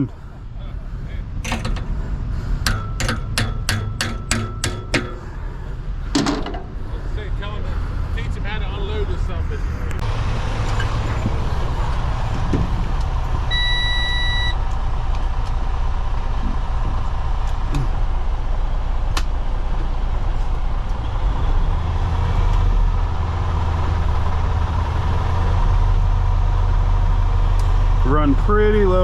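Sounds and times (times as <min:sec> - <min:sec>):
truck diesel engine rumbling: 0:00.0 - 0:29.0
electronic beep: 0:13.5 - 0:14.6.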